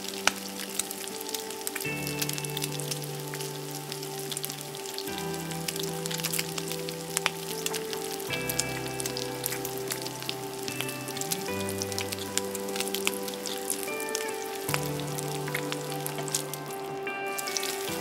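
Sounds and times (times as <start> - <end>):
background music of held chords: 0.0 - 18.0.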